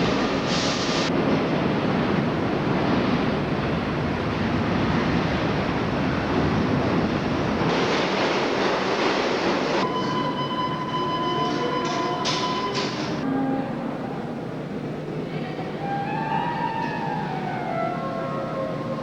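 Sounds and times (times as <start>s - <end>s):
subway train rumbling: 0.0s - 19.0s
steady high tone: 9.8s - 14.4s.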